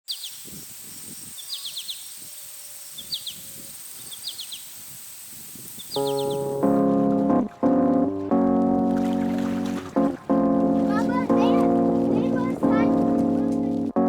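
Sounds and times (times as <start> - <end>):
songbird chirping: 0.0 - 4.8, 5.8 - 13.7
piano music: 6.0 - 14.0.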